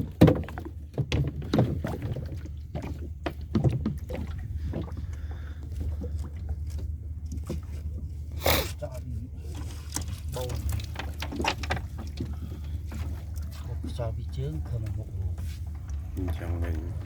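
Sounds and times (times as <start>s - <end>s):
knocks on boat: 0.0s - 5.1s
boat engine drone: 0.0s - 17.0s
water splashes: 0.0s - 17.0s.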